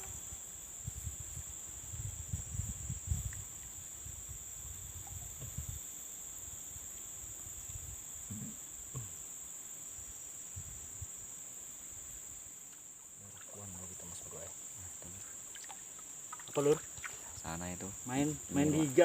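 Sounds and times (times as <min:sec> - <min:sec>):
high-pitched insect chorus: 0:00.0 - 0:19.0
microphone handling rumble: 0:05.0 - 0:05.8, 0:08.2 - 0:09.2.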